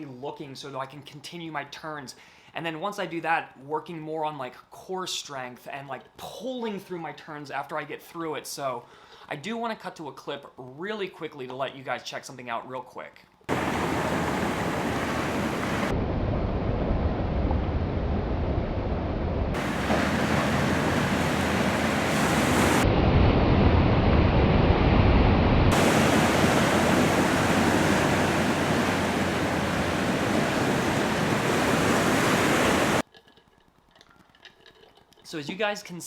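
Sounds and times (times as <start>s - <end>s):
ocean surf rushing: 13.5s - 18.4s, 19.5s - 33.0s
wind on microphone: 13.5s - 33.0s.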